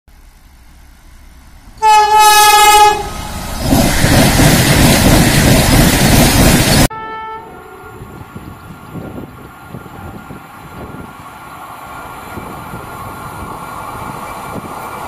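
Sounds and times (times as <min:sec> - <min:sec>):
low train rumble: 0:00.1 - 0:15.0
train rushing past: 0:00.2 - 0:15.0
distant train horn: 0:01.8 - 0:03.4, 0:06.9 - 0:08.2
loud train horn: 0:01.8 - 0:03.4, 0:06.9 - 0:08.2.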